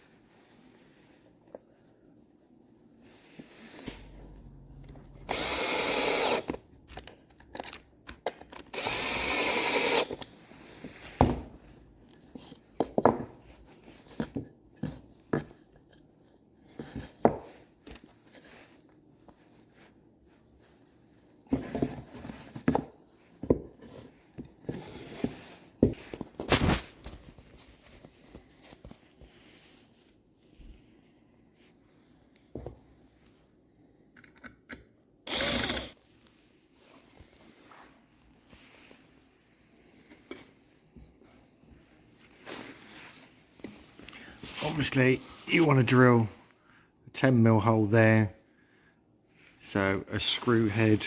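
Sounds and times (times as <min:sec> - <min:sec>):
cordless drill driving screw: 0:05.2 - 0:06.6, 0:08.7 - 0:10.2, 0:35.3 - 0:35.9.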